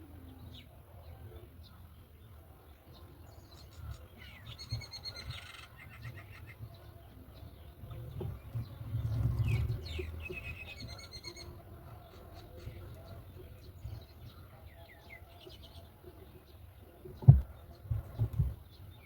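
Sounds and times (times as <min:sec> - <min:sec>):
nestling birds rattling calls: 0:03.4 - 0:06.8, 0:08.1 - 0:15.8.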